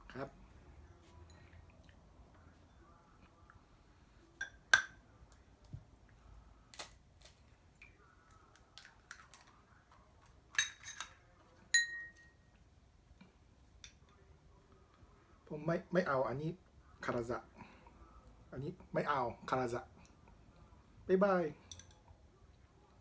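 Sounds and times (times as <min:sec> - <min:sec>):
kitchenware clinking on ceramic bowl: 0:04.4 - 0:05.0, 0:10.6 - 0:12.4.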